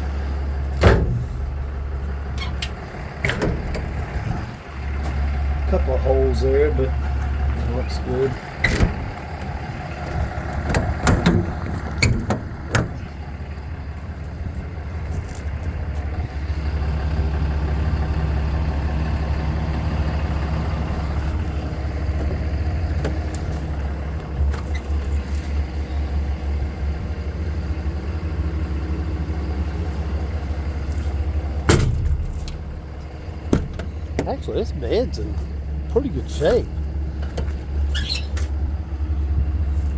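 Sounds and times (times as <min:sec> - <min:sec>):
truck engine idling: 0:00.0 - 0:39.9
sharp knocks: 0:00.8 - 0:01.7, 0:31.7 - 0:34.3.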